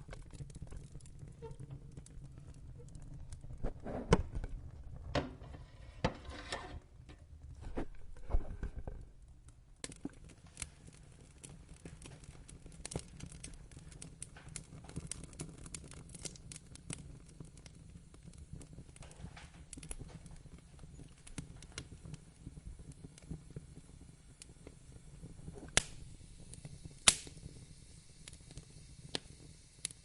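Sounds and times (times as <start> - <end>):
low rumble of flames: 0.0 - 30.0
wood fire crackling and popping: 0.0 - 30.0
fire hiss: 9.9 - 30.0.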